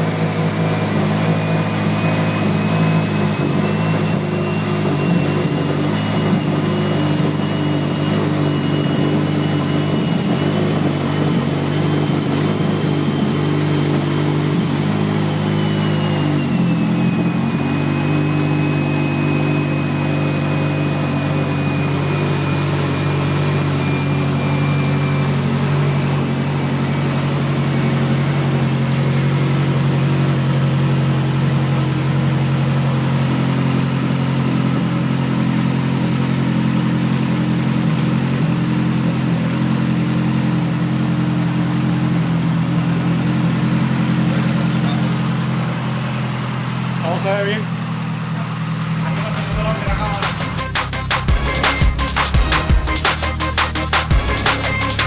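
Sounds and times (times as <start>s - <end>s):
thin high whine: 0.0s - 27.1s, 48.8s - 55.0s
car engine idling: 25.2s - 55.0s.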